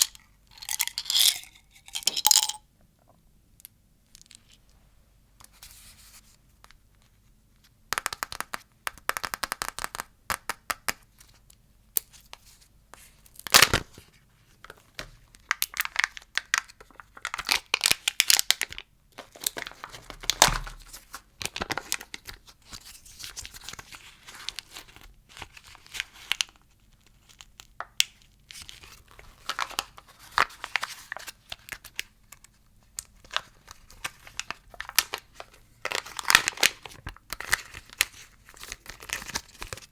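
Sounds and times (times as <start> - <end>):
plastic wrappers crinkling: 28.5 - 39.9.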